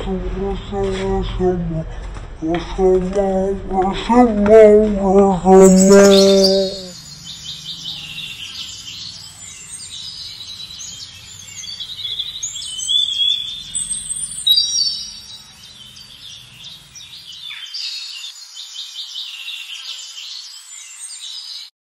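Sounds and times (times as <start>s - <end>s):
small birds chirping: 0.0s - 21.7s
whistled bird calls: 5.6s - 8.9s, 10.6s - 15.6s.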